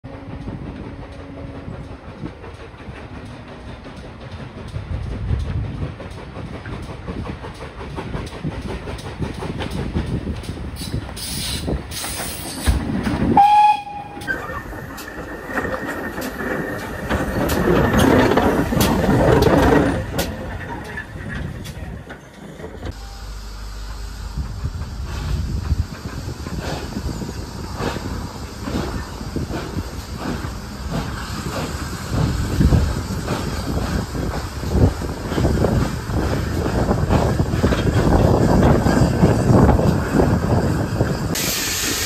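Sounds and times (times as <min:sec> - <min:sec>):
steam train rail clatter: 0:00.1 - 0:42.0
steam whistle: 0:13.4 - 0:14.5.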